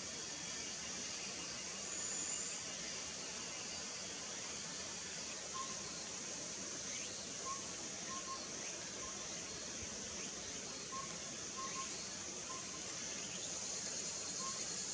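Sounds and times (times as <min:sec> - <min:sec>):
insects hissing: 0:00.0 - 0:14.9.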